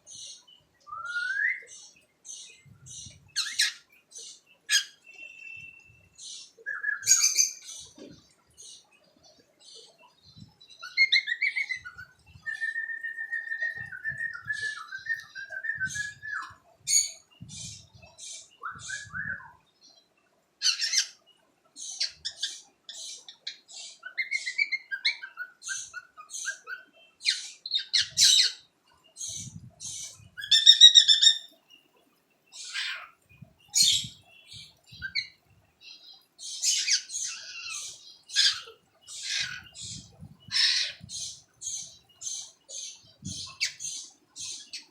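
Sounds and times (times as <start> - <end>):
cockatiel chirping and squawking: 3.4 - 3.8, 20.6 - 21.1, 24.0 - 28.6, 29.8 - 31.5, 32.6 - 33.1, 36.4 - 44.9.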